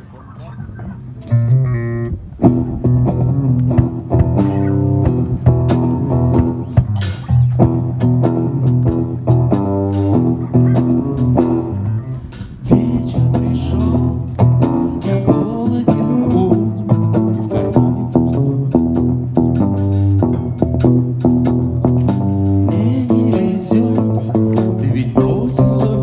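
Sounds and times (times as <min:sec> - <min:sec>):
bass guitar line: 0:00.0 - 0:26.0
blues-rock guitar: 0:01.2 - 0:26.0.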